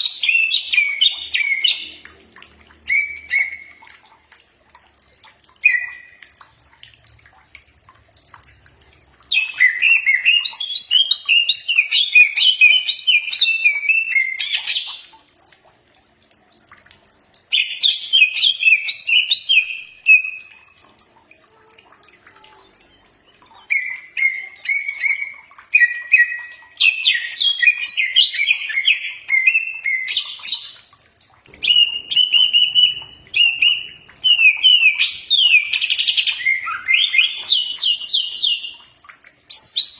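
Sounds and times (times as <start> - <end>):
bird singing whistled notes: 31.6 - 38.7.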